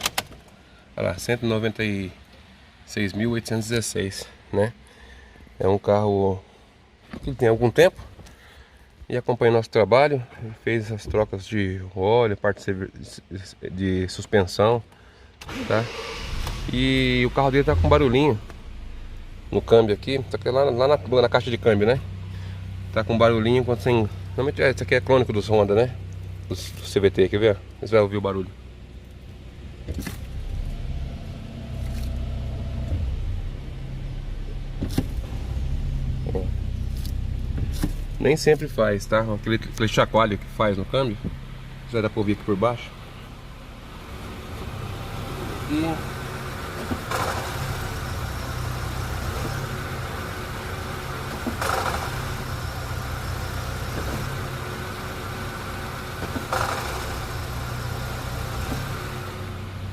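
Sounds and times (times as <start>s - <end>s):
car engine running: 15.5s - 59.9s
transmission rattle: 50.7s - 54.7s, 56.1s - 59.0s.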